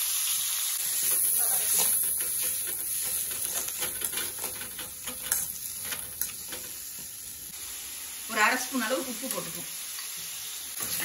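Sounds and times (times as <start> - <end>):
vegetables sizzling in hot oil: 0.0 - 11.0
ladle scraping a pan: 0.8 - 7.1.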